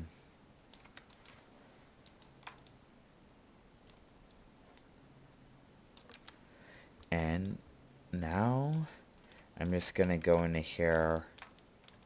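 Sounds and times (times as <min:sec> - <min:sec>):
keyboard and mouse clicks: 0:00.7 - 0:01.4, 0:02.0 - 0:02.8, 0:05.9 - 0:06.4, 0:08.3 - 0:12.0.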